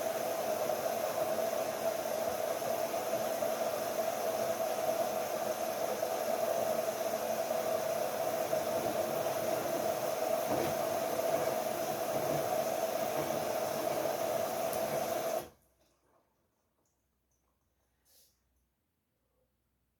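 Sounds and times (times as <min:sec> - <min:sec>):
washing machine running: 0:00.0 - 0:15.6.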